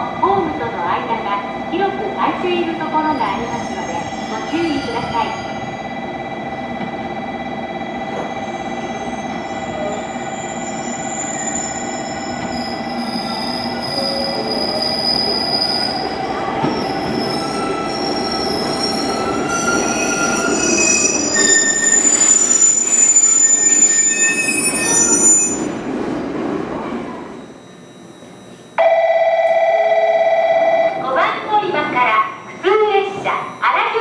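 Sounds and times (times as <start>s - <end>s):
electric train running rumble: 0.0s - 31.1s
train brakes squealing: 8.1s - 25.8s, 26.8s - 28.8s.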